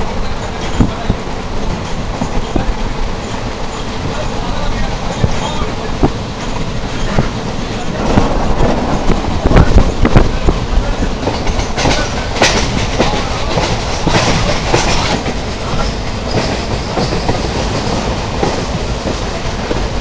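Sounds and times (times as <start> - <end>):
train coach rumble and rattle: 0.0 - 20.0
wheels clacking over rail joints: 0.2 - 20.0.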